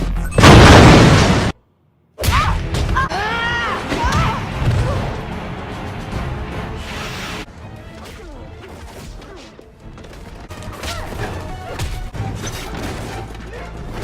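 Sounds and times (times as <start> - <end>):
background music: 2.2 - 14.0.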